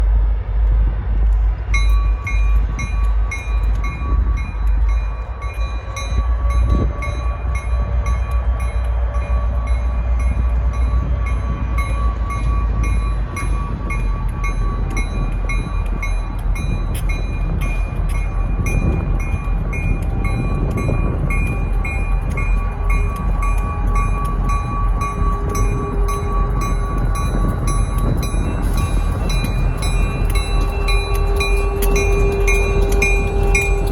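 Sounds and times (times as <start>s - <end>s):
diesel locomotives rumbling: 0.0s - 33.9s
locomotive bell ringing: 1.7s - 33.9s.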